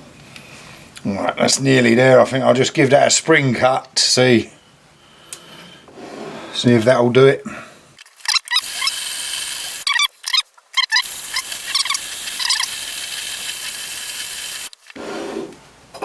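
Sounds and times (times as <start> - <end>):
threading tool squealing chirps: 8.0 - 14.8
lathe cutting metal hiss: 8.6 - 9.9, 11.0 - 15.0.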